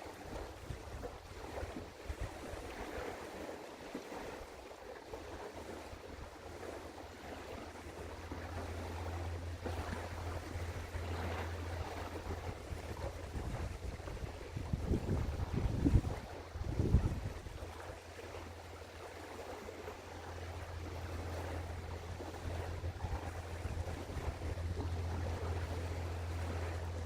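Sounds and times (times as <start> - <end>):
river water noise: 0.0 - 27.0
low steady rumble: 5.3 - 27.0
wind buffeting microphone: 5.6 - 27.0.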